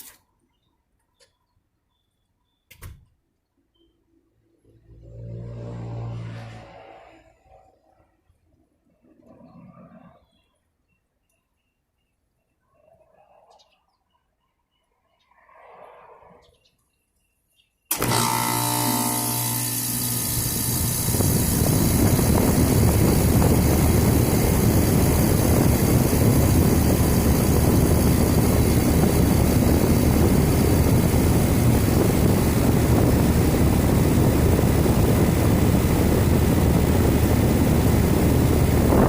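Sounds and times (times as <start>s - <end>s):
air conditioner fan rushing: 17.9s - 39.0s.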